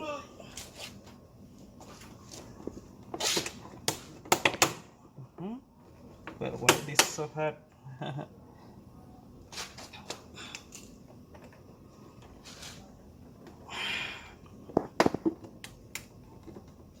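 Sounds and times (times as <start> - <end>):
breathy exhale: 13.7 - 14.4.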